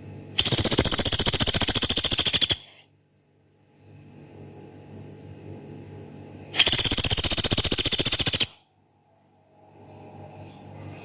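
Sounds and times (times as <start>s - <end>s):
woodpecker harsh high rattle: 0.4s - 2.8s, 6.6s - 8.6s.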